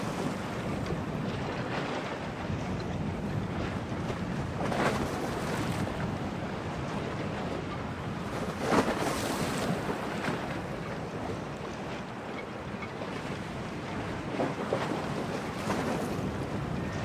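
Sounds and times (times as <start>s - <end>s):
waves splashing against shore: 0.0s - 2.8s
gusting wind: 0.0s - 17.0s.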